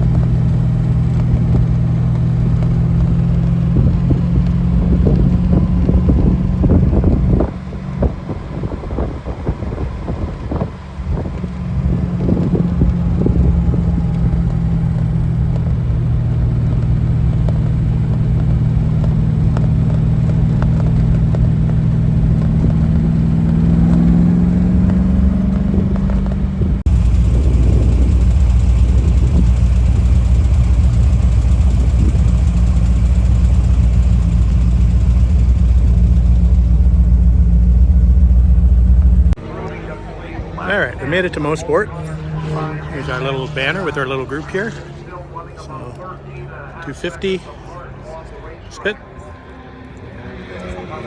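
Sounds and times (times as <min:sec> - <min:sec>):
car engine cruising: 0:00.0 - 0:51.0
road noise: 0:00.0 - 0:51.0.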